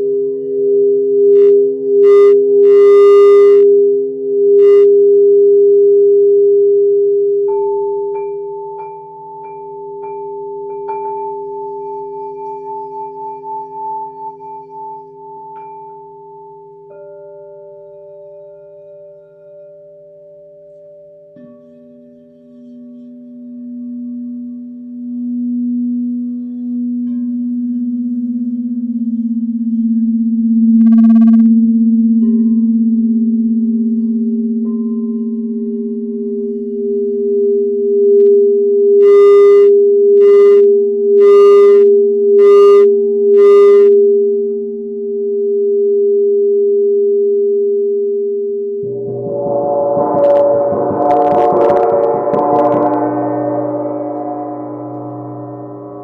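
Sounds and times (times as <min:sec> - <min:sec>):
singing bowls ringing: 0:07.5 - 0:30.7, 0:32.2 - 0:37.9, 0:48.7 - 0:56.0
bright struck note: 0:48.8 - 0:56.0.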